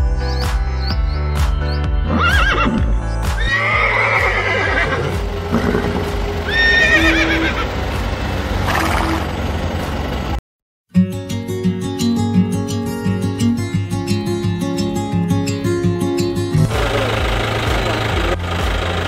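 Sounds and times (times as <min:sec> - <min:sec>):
background music: 0:00.0 - 0:08.8, 0:10.9 - 0:19.0
horse neighing: 0:02.1 - 0:02.8, 0:03.4 - 0:07.7.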